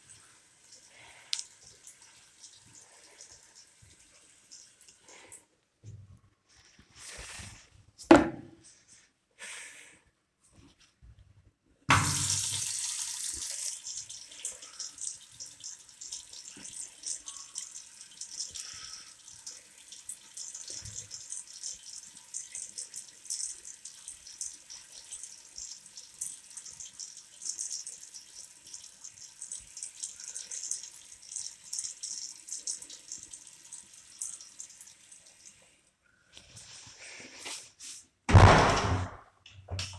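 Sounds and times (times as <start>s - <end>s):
tap water running into sink: 8.1s - 8.4s, 11.9s - 35.6s.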